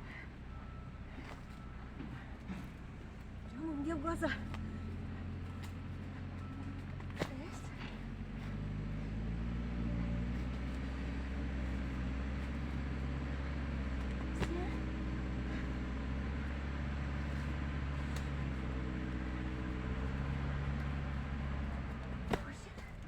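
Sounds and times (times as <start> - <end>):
bulldozer diesel engine droning: 0.0 - 23.0.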